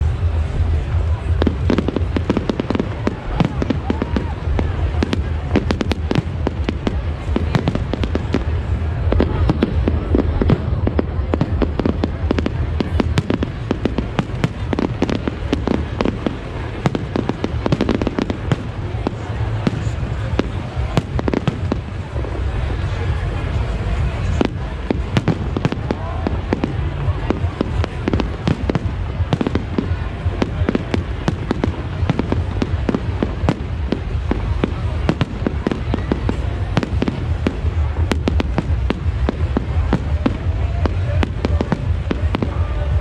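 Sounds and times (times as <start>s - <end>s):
fireworks bangs and cracks: 0.0s - 43.0s
low rumble: 0.0s - 43.0s.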